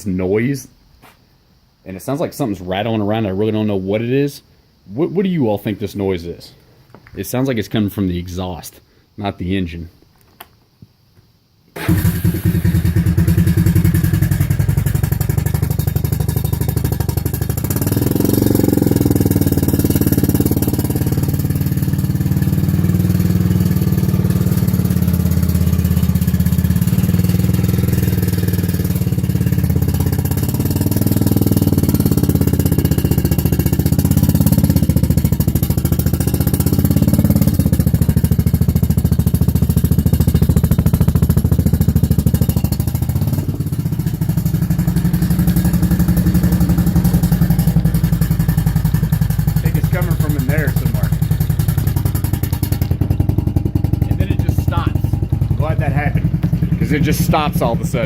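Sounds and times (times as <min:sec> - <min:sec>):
atv engine idling: 0:11.8 - 0:58.0
loose rattle: 0:24.5 - 0:57.9.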